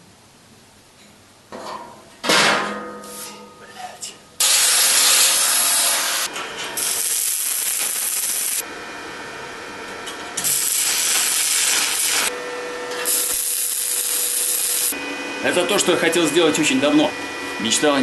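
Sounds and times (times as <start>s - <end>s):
hissing steel being worked: 4.4s - 8.6s, 10.4s - 18.0s.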